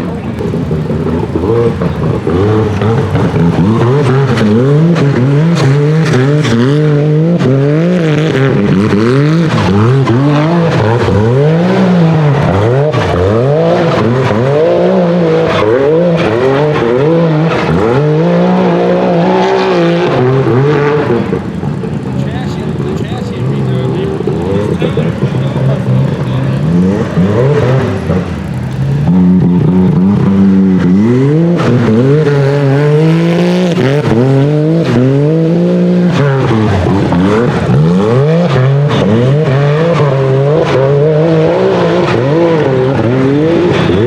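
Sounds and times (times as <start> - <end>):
buggy engine revving: 0.0 - 44.0.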